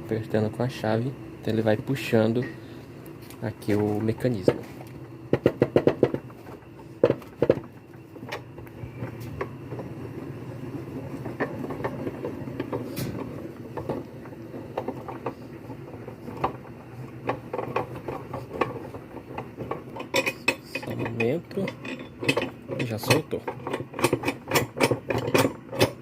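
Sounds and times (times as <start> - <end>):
metal clicks and knocks: 17.2 - 26.0.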